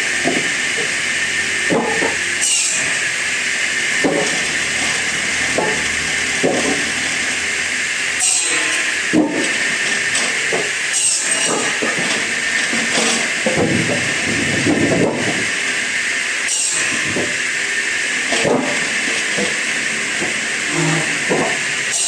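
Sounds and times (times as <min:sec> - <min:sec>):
wood-processing machinery hiss: 0:00.0 - 0:22.0
wood knocking and clattering: 0:20.2 - 0:21.6.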